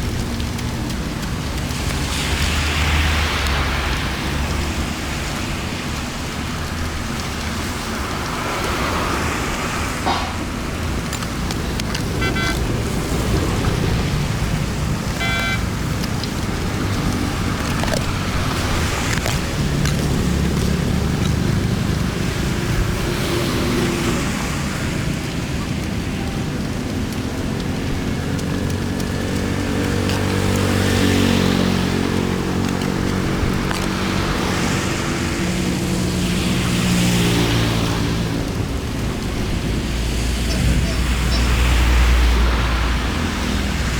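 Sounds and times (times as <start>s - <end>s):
floodwater rushing: 0.0s - 43.9s
engine running: 9.6s - 23.2s
short high-pitched beeps: 12.2s - 12.6s, 15.2s - 15.6s.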